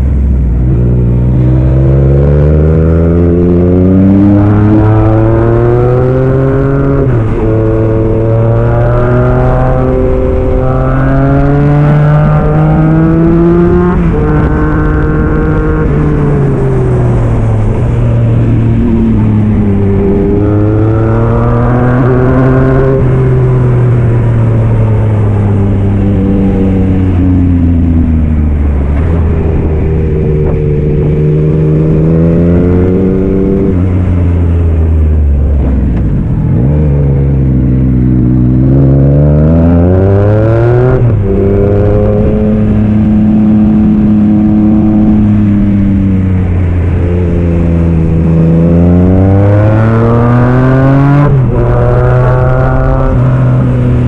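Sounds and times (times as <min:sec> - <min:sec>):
motorcycle engine revving through gears: 0:00.0 - 0:54.0.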